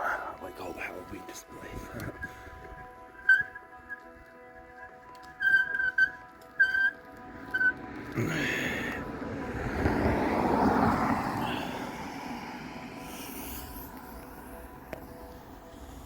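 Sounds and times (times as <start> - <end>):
vehicle passing by: 7.1 - 16.0.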